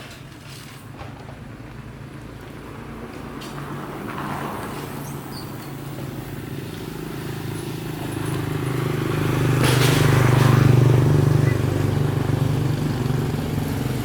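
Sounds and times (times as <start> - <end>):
motorcycle engine running: 6.1 - 14.0.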